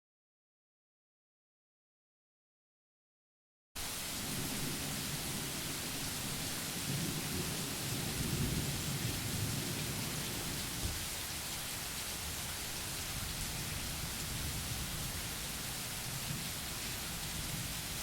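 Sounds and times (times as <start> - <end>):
rain hissing: 3.8 - 18.0
thunder rumbling: 4.2 - 11.0.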